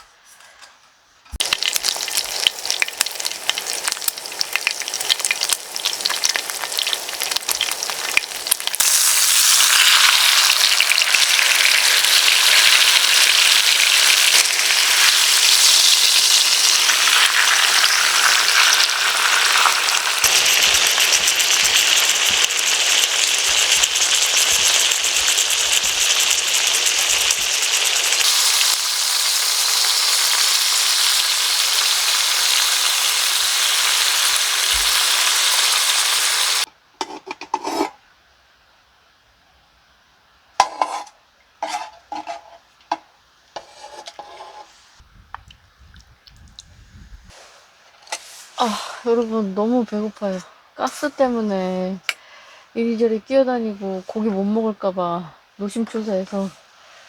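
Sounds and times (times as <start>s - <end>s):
pork sizzling in a hot pan: 1.4s - 36.7s.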